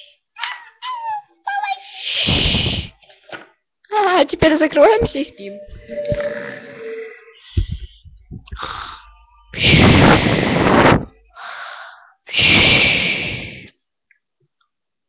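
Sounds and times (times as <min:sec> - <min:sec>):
breathy blowing close to microphone: 0:01.9 - 0:03.0, 0:05.9 - 0:13.7.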